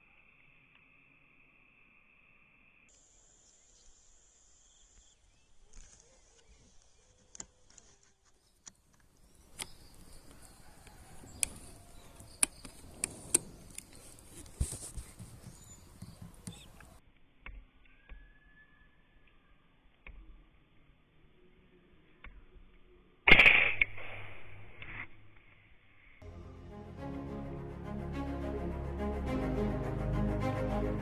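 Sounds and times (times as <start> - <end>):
sharp clicks: 8.6 - 14.2.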